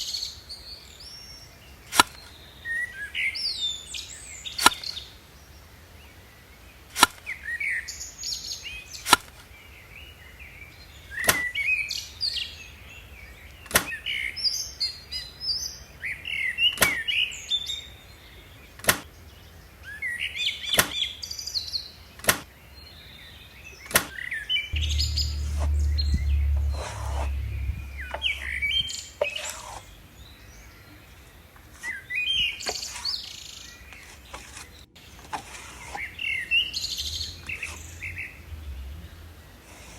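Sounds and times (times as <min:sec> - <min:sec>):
low rumble: 0:24.8 - 0:29.1.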